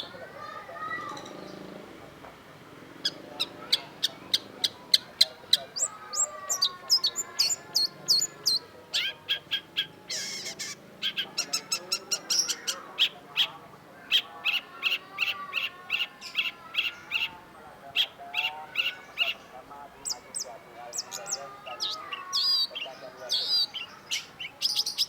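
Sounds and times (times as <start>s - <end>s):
shrike chattering song: 0.0s - 25.0s.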